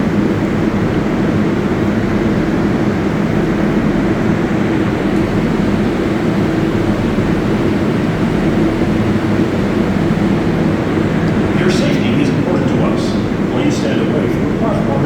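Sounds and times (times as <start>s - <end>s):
subway train drone: 0.0s - 15.0s
low even hum: 9.7s - 15.0s.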